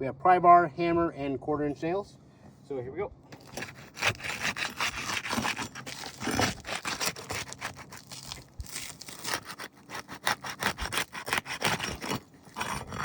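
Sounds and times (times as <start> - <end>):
pry bar scraping shingles: 3.3 - 13.0.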